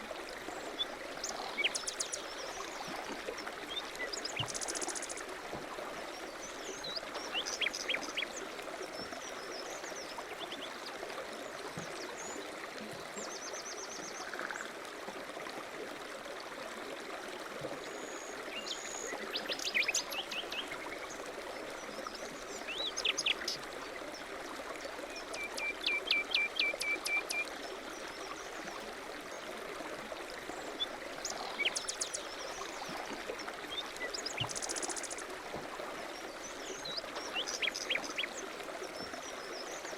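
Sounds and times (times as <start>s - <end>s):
small songbirds chirping: 0.6s - 2.9s, 3.6s - 5.3s, 6.1s - 10.9s, 21.8s - 23.6s, 30.5s - 39.9s.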